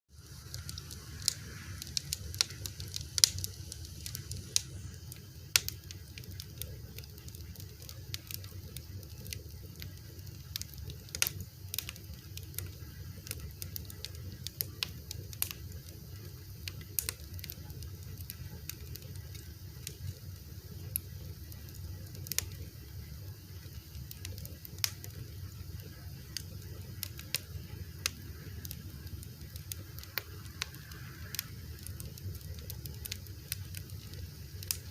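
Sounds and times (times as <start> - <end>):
low rumble of flame: 0.1 - 34.9
wood fire crackling and popping: 0.2 - 34.9.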